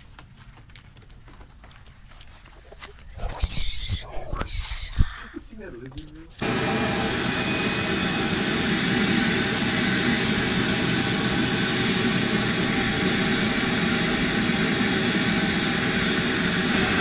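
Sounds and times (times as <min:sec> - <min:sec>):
shop vacuum running: 0:06.4 - 0:17.0.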